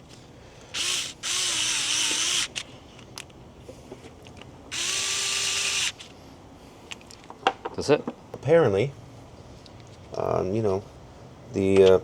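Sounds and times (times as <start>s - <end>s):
electric screwdriver motor whine: 0.8s - 2.7s, 4.7s - 6.0s.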